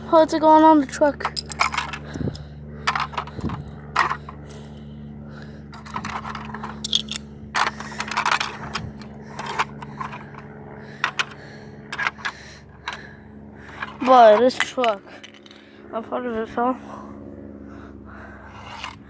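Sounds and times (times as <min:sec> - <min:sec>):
low hum: 0:00.0 - 0:19.0
metal parts clattering and scraping: 0:01.2 - 0:04.6, 0:05.7 - 0:10.4, 0:11.0 - 0:13.0, 0:13.7 - 0:15.6.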